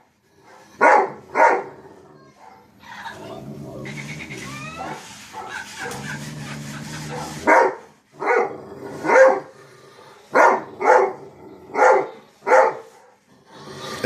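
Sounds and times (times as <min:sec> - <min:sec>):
dog barking: 0:00.4 - 0:01.7, 0:02.4 - 0:02.7, 0:07.1 - 0:09.5, 0:10.3 - 0:13.2.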